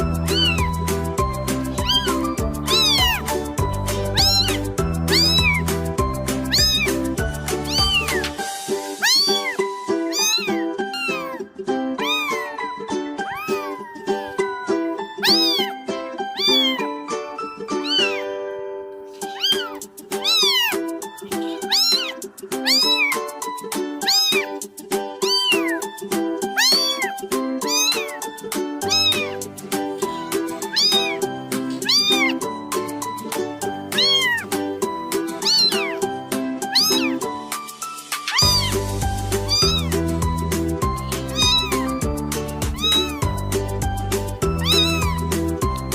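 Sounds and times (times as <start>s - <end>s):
cat meowing: 0.0s - 0.9s, 1.6s - 5.7s, 6.4s - 8.4s, 9.0s - 15.8s, 16.4s - 17.0s, 17.8s - 18.4s, 19.2s - 23.3s, 24.0s - 24.6s, 25.2s - 25.9s, 26.5s - 29.5s, 30.1s - 32.5s, 33.8s - 37.4s, 38.2s - 43.5s, 44.3s - 45.9s
background music: 0.0s - 45.9s.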